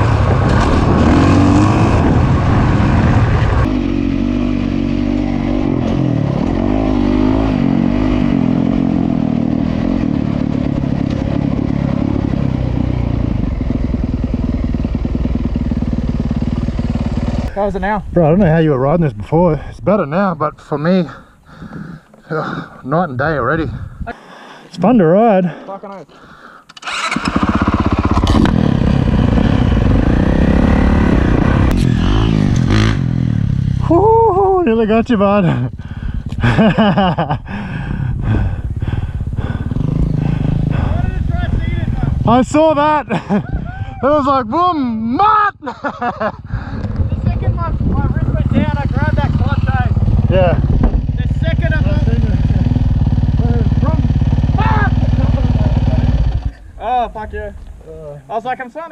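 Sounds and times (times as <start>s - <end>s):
motocross bike engine revving: 0.0s - 17.5s, 26.8s - 43.4s, 46.1s - 58.0s.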